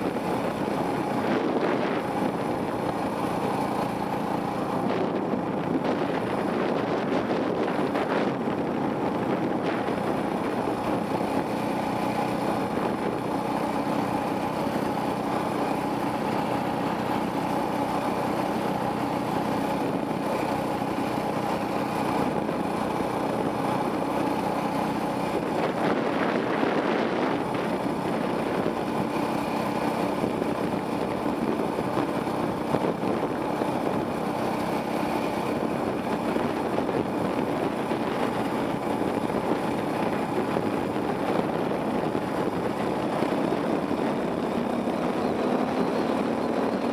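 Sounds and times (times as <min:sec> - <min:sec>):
dirt bike engine running: 0:00.0 - 0:46.9.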